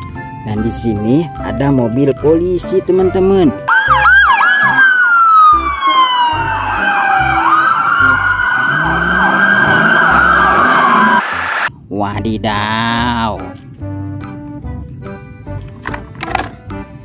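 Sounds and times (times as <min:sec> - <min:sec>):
police siren wailing: 0:03.7 - 0:11.7
siren yelps: 0:03.7 - 0:11.7.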